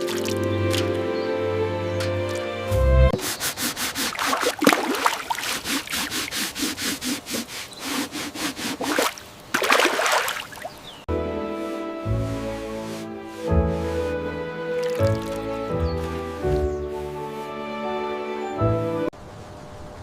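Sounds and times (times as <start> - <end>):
quick rhythmic scraping: 3.1 - 9.1, 11.5 - 17.8.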